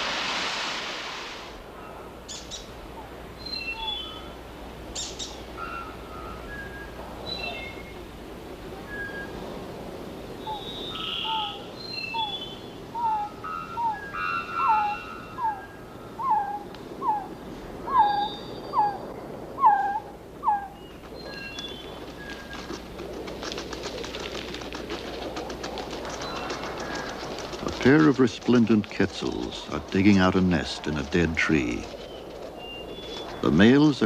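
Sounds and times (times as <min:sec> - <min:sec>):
thin bird calls: 0:10.4 - 0:19.0, 0:19.6 - 0:22.8, 0:31.7 - 0:33.6.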